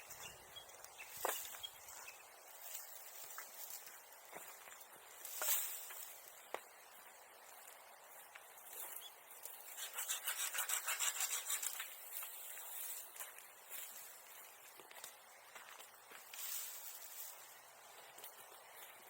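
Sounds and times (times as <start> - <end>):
hand saw cutting wood: 9.7 - 11.9.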